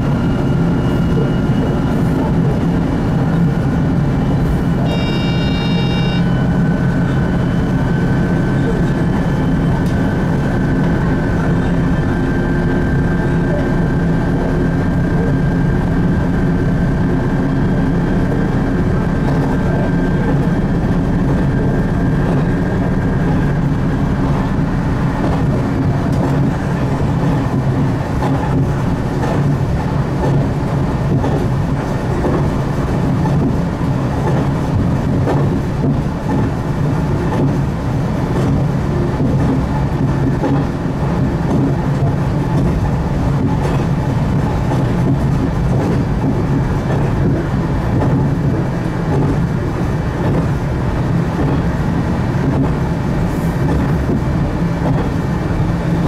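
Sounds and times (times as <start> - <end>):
diesel railcar engine drone: 0.0 - 56.0
wheels clicking on track: 0.0 - 56.0
thin high whine: 4.8 - 6.5.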